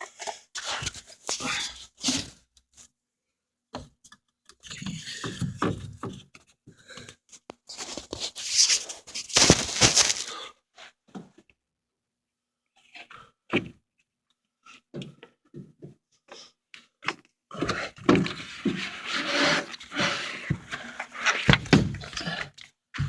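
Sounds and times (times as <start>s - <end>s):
filter scraping and rattling: 7.7s - 10.4s.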